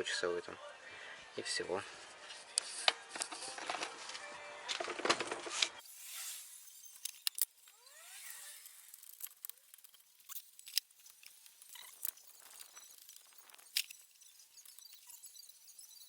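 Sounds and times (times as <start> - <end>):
faint rising chirps: 5.8 - 16.0.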